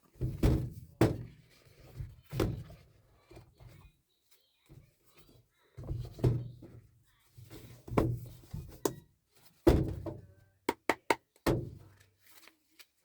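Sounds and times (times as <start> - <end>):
cards tapped on table: 10.7 - 11.2.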